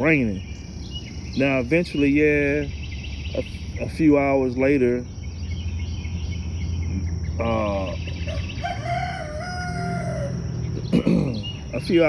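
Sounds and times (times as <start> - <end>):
rooster crowing: 8.1 - 11.4.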